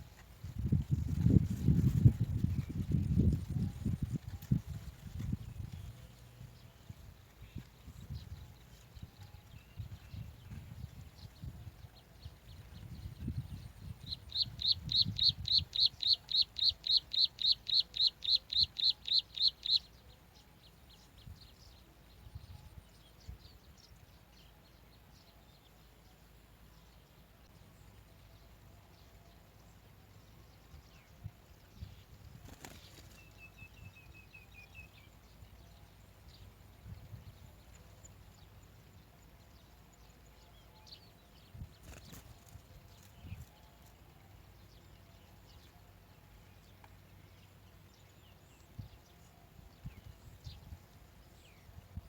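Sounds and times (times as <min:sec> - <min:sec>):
faint bird chirps: 0:07.4 - 0:20.2.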